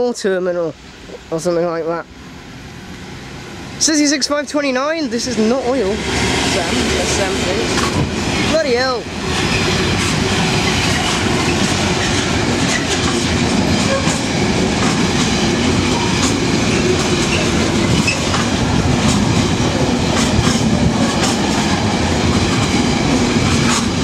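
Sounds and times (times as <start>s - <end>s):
freight train rumbling past: 0.0s - 24.0s
wheels clacking over rail joints: 5.2s - 24.0s.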